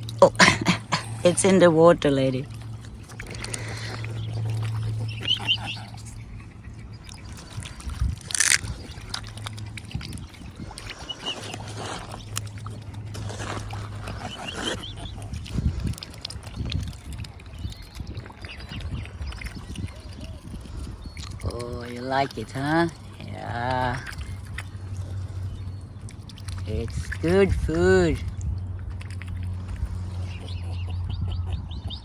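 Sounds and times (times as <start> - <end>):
bills splashing in water: 0.0 - 32.0
low steady hum: 0.0 - 32.0
high chirping calls: 3.3 - 7.6, 30.0 - 32.0.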